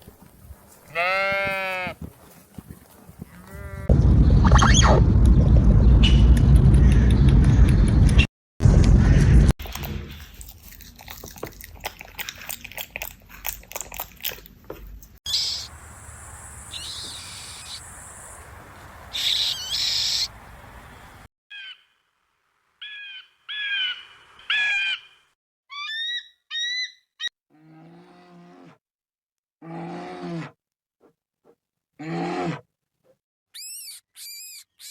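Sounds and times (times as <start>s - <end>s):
crackling rustle: 0.0s - 3.7s
short sharp pitched calls: 15.3s - 18.5s, 19.1s - 20.4s
bird calls: 15.3s - 21.9s.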